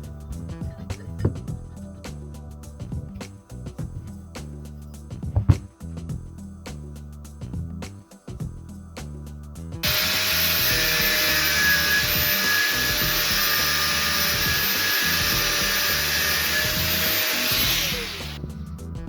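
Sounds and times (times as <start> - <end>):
background music: 0.0 - 19.0
power tool motor grinding: 9.8 - 18.4.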